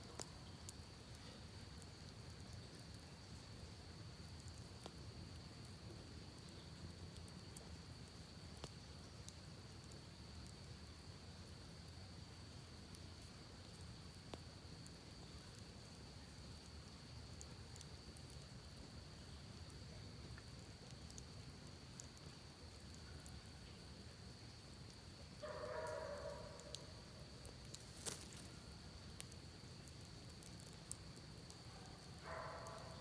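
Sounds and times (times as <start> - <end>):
campfire crackling: 0.0 - 33.0.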